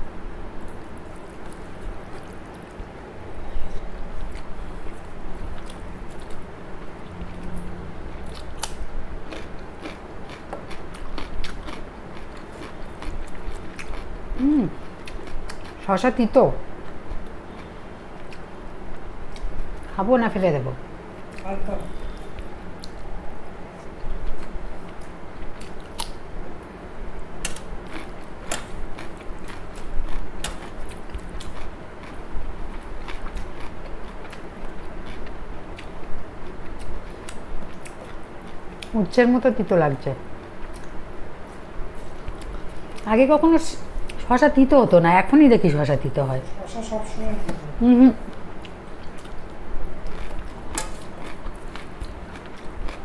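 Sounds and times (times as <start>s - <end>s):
person chewing crunchy food: 3.6s - 15.8s, 16.8s - 18.5s, 27.4s - 38.9s, 48.6s - 53.0s.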